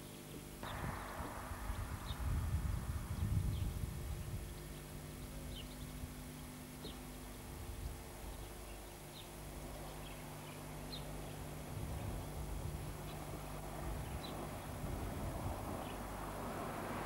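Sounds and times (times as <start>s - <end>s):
small birds chirping faintly: 0.0s - 17.0s
steady low hum: 0.0s - 17.0s
rushing noise: 0.6s - 3.8s.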